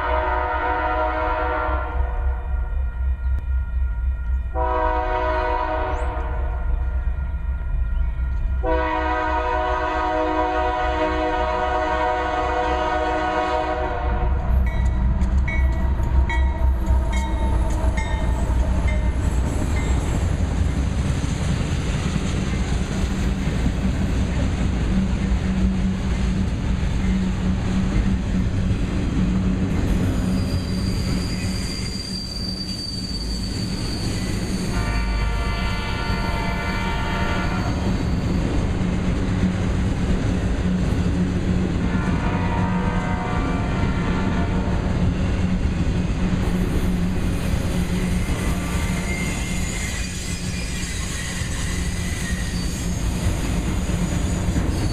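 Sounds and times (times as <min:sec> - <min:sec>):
locomotive horn: 0:00.0 - 0:02.4, 0:03.4 - 0:07.0, 0:07.9 - 0:14.8, 0:16.0 - 0:19.2, 0:34.7 - 0:38.0, 0:41.8 - 0:45.0, 0:48.3 - 0:49.7
train wheels rumbling on rail: 0:00.0 - 0:54.9
high wheel squeal: 0:29.9 - 0:38.6, 0:48.0 - 0:54.9.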